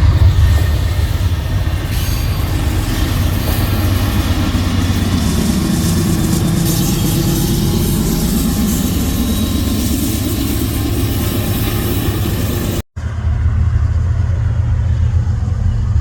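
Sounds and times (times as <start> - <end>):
train passing: 0.0 - 16.0.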